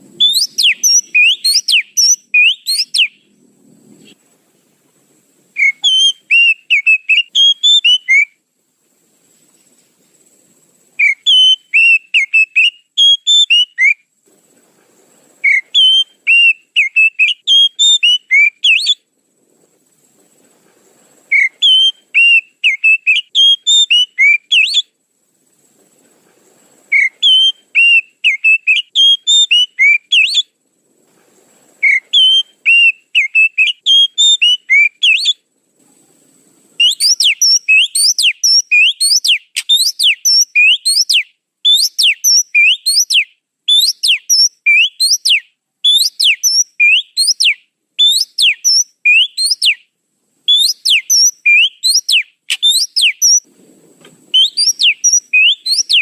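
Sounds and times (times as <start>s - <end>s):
bird whistling song: 0.0s - 3.4s, 5.6s - 8.4s, 11.0s - 14.1s, 15.4s - 19.1s, 21.3s - 25.0s, 26.9s - 30.6s, 31.8s - 35.4s, 36.8s - 49.9s, 50.5s - 53.5s, 54.3s - 56.0s.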